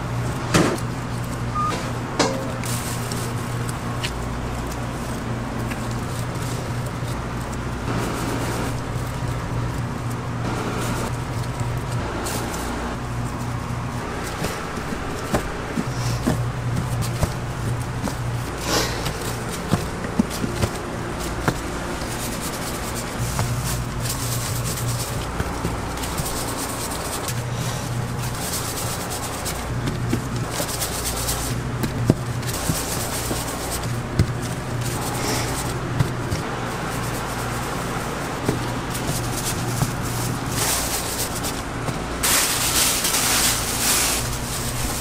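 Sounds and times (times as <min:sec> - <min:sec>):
steady low hum: 0:00.0 - 0:45.0
hands rubbing dough: 0:00.1 - 0:45.0
small knocks: 0:01.6 - 0:03.2.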